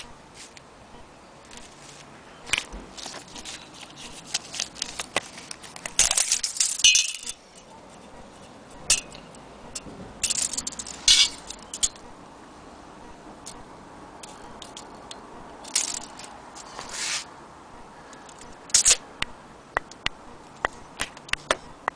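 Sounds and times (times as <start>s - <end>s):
metal parts clicking and rattling: 2.5s - 12.0s, 14.2s - 16.8s, 18.1s - 19.0s.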